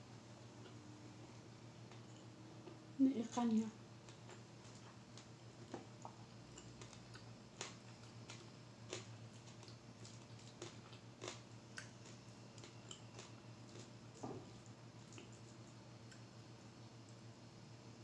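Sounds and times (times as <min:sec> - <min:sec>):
low steady hum: 0:00.0 - 0:18.0
chewing and mouth noises: 0:04.1 - 0:16.3.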